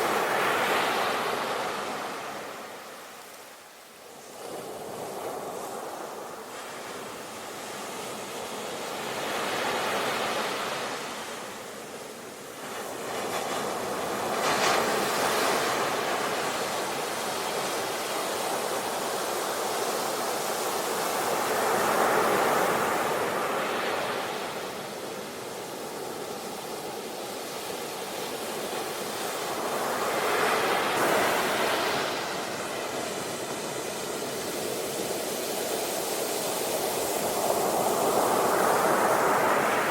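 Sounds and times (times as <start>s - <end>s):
sea waves breaking: 27.8s - 39.9s.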